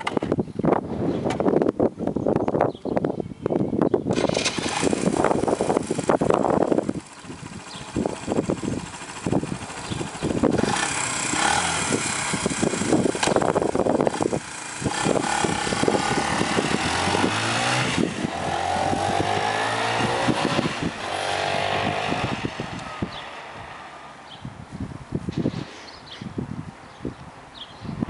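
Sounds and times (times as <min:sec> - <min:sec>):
motorcycle engine revving: 0:04.1 - 0:24.4.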